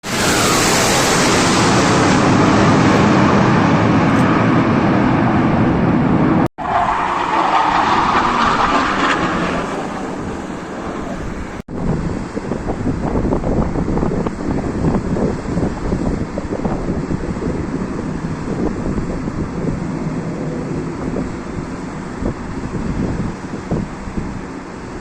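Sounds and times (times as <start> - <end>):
jet aircraft flying past: 0.0 - 11.6.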